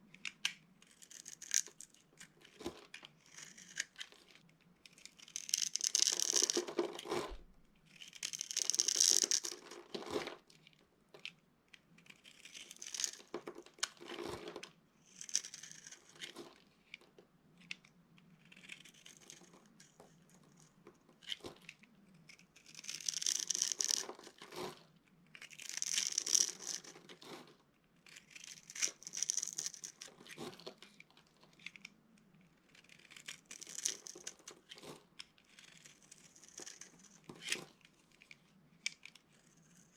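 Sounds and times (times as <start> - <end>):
dry soap crunching: 3.2 - 3.9, 4.9 - 9.7, 25.4 - 27.0, 32.7 - 34.9.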